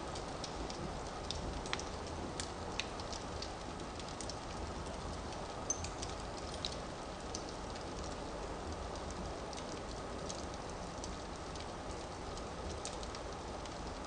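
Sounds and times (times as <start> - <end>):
fire burning in fireplace: 0.0 - 14.0
fire crackling and popping: 0.0 - 14.0.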